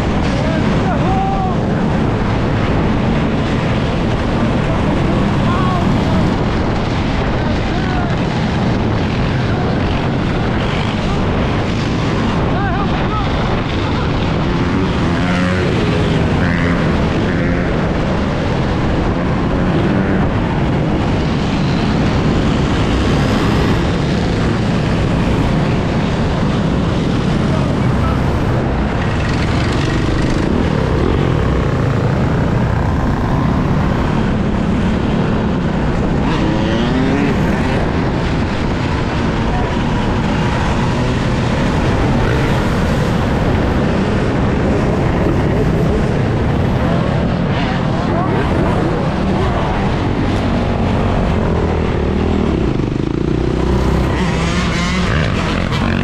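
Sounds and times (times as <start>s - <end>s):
road noise: 0.0s - 56.0s
wind rush: 0.0s - 56.0s.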